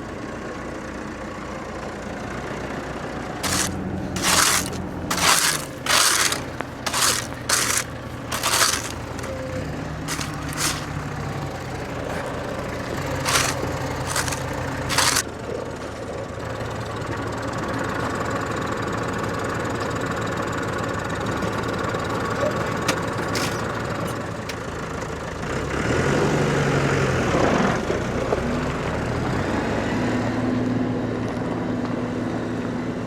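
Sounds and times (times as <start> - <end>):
harsh scraping or crunching: 3.4 - 11.1, 12.8 - 15.2
tractor engine running: 3.4 - 15.2.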